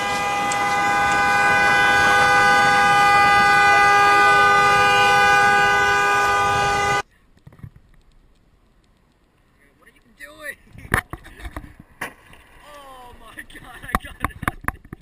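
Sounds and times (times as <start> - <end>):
two-tone car horn blast: 0.0 - 7.0.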